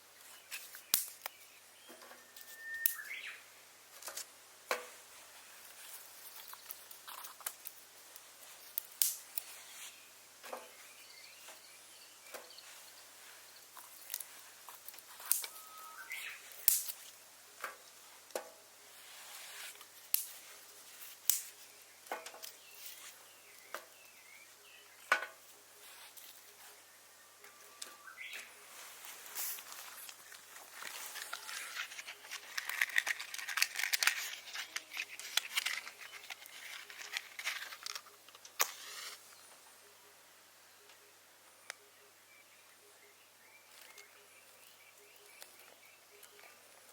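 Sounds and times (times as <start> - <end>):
bird chirps: 0.2 - 3.6, 15.2 - 16.6, 26.6 - 29.0
twigs snapping: 0.5 - 1.4, 8.7 - 9.5, 13.8 - 15.6, 16.5 - 17.1, 20.1 - 22.6, 29.3 - 39.0.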